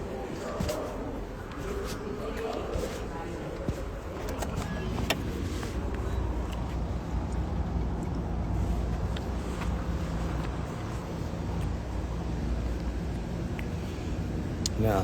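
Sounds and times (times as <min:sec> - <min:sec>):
low engine-like rumble: 0:00.0 - 0:15.0.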